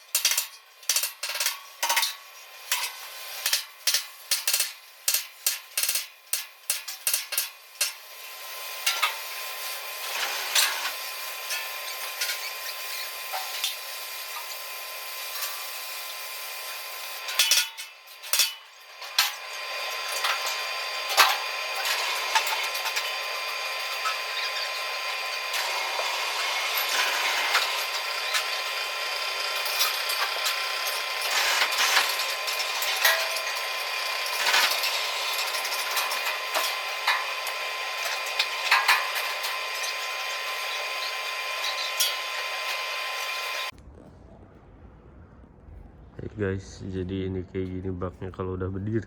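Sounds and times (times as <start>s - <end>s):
hissing tool with crackles: 0.0s - 43.8s.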